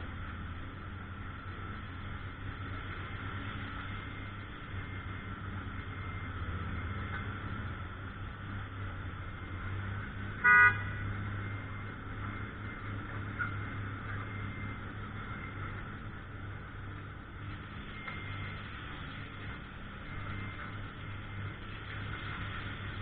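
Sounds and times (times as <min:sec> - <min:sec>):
vehicle horn toot: 0:10.4 - 0:11.2.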